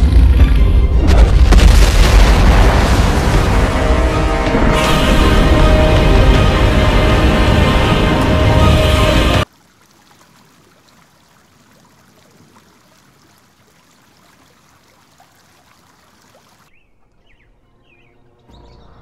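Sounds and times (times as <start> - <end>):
low rumble: 0.0 - 9.4
bird-like chirps: 16.7 - 19.0.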